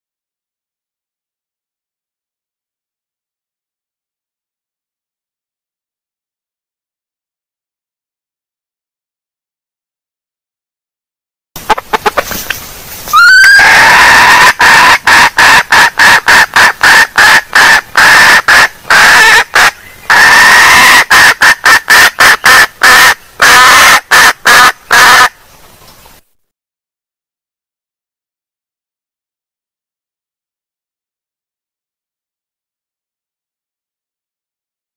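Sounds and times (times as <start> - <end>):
junglefowl hen clucking: 11.6 - 25.8.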